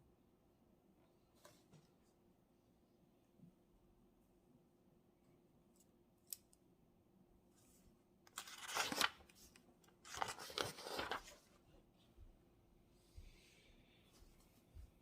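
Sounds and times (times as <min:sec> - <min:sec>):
paper rustling: 0:08.3 - 0:11.6.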